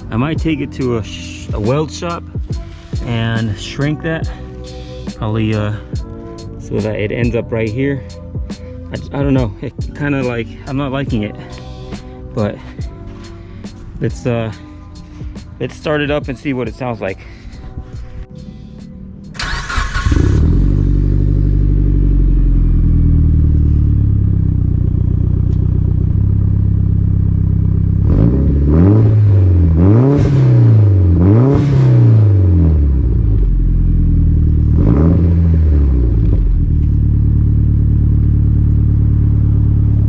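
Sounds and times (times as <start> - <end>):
car engine starting and idling: 0.0 - 40.0
engine revving: 19.3 - 25.2, 26.0 - 40.0.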